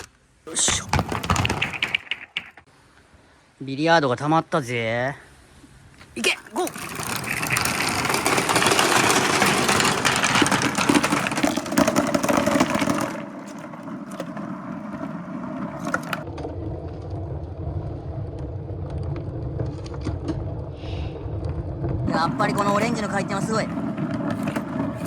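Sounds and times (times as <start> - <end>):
balls clattering down wooden marble run: 0.5 - 2.6, 6.2 - 16.3, 22.1 - 25.0.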